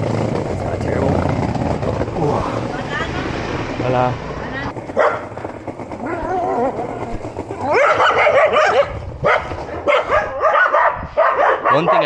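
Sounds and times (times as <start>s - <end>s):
dog barking: 5.0s - 5.3s, 7.6s - 12.0s.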